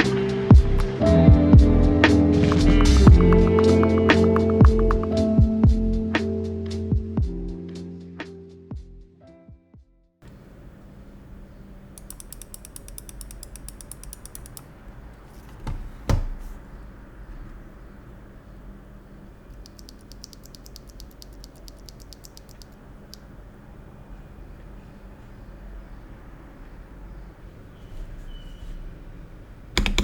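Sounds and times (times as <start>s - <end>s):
keyboard thump: 2.5s - 5.1s, 29.8s - 30.0s
mechanical keyboard keystroke clicks: 12.0s - 14.7s, 19.6s - 22.8s, 29.8s - 30.0s.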